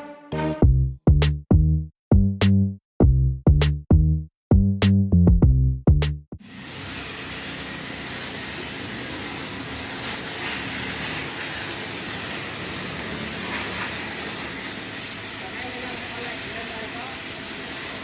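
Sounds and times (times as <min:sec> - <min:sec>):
drum machine beat: 0:00.0 - 0:06.4
pressure washer spraying: 0:06.4 - 0:18.0.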